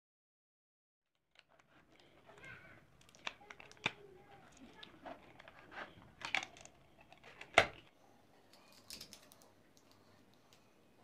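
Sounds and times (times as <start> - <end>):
plastic keyboard parts clicking: 1.3 - 7.9.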